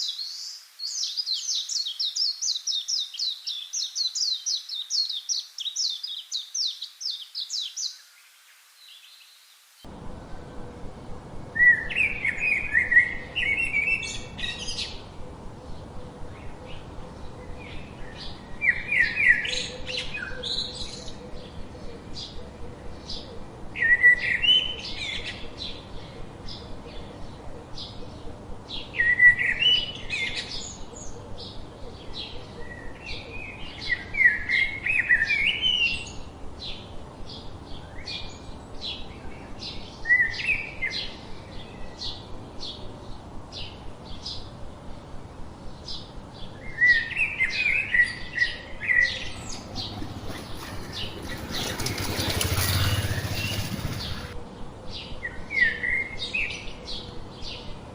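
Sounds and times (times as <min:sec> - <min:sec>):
birds chirping: 0:45.6 - 0:57.8
songbird warbling: 0:48.9 - 0:54.4.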